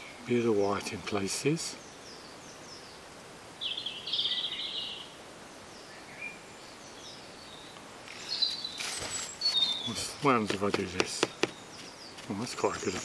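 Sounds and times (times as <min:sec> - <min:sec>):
faint steady hiss: 0:00.0 - 0:13.0
small birds chirping: 0:00.0 - 0:13.0
brief rustle: 0:08.0 - 0:09.8
rapid high bird trill: 0:08.1 - 0:13.0.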